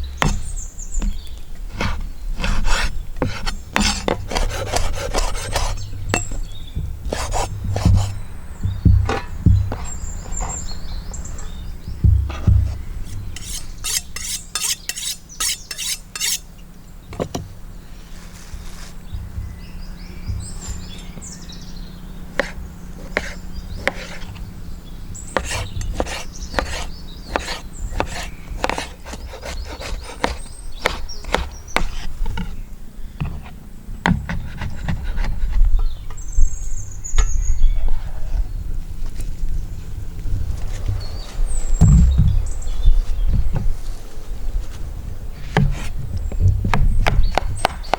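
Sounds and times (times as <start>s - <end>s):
rasping strokes: 1.7s - 6.4s, 7.0s - 8.2s, 13.0s - 16.6s, 25.4s - 32.6s
utensils scraping wood and dishes: 13.0s - 16.6s.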